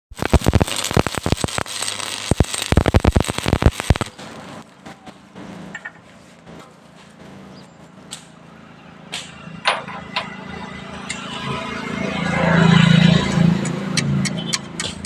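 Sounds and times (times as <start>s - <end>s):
arc welding crackling and popping: 0.1s - 7.4s.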